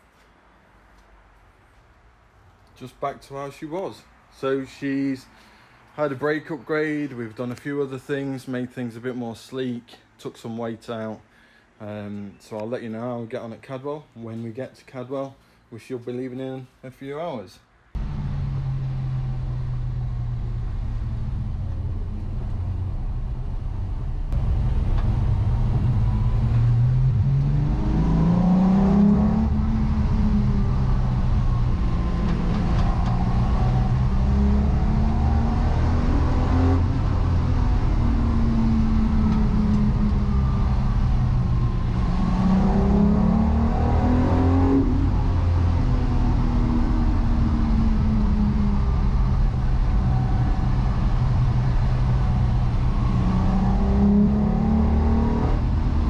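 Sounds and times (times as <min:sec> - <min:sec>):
car engine accelerating: 0:18.0 - 0:56.0.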